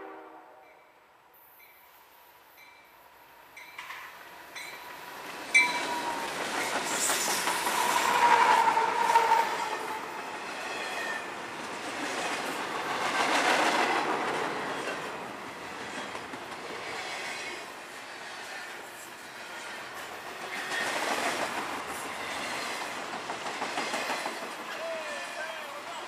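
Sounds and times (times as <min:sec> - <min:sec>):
freight train wheels clattering: 0:19.9 - 0:25.5.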